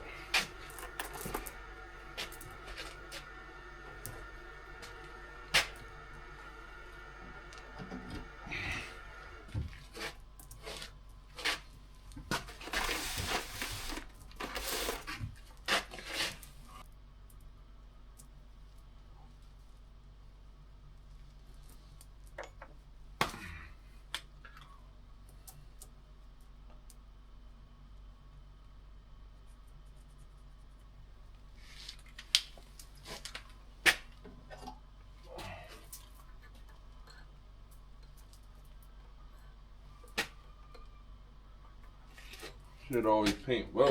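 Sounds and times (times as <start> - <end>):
rustling: 9.6 - 16.8.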